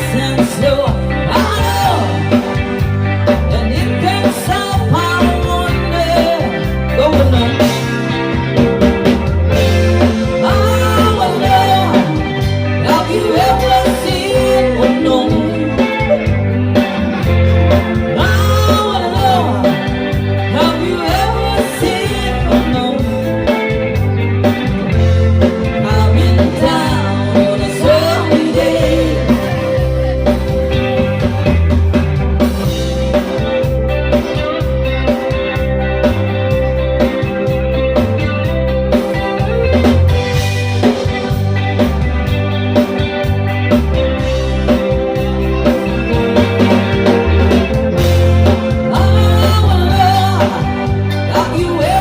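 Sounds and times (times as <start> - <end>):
bass line: 0.0 - 52.0
guitar: 0.0 - 52.0
rock song with singer: 0.0 - 52.0.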